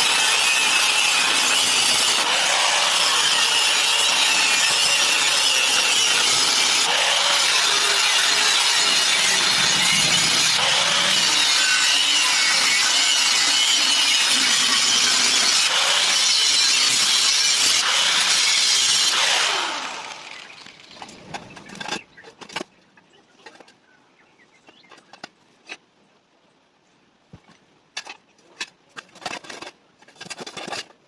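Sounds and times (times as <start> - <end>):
power tool running: 0.0 - 20.9.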